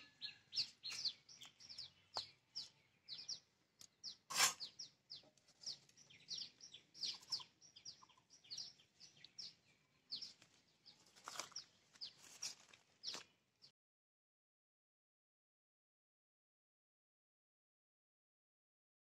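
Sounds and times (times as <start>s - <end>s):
small birds chirping: 0.0s - 13.7s.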